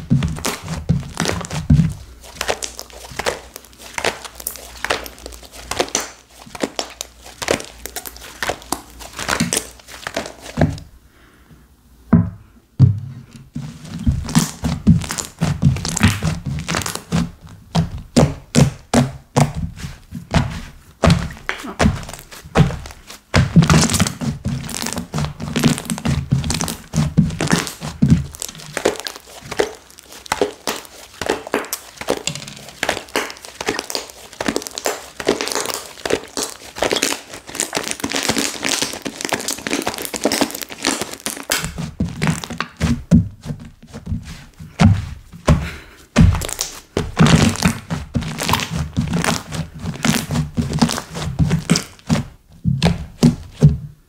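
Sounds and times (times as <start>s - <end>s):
slime popping and crackling: 0.0s - 10.9s, 13.6s - 53.7s.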